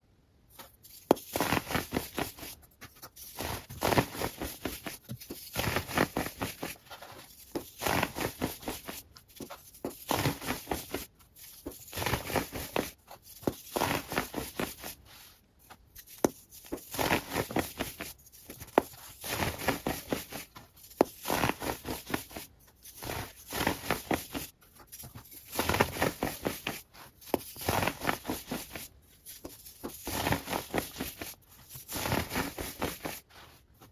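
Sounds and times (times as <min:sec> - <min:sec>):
crisp crackling and tapping: 0:15.7 - 0:33.9.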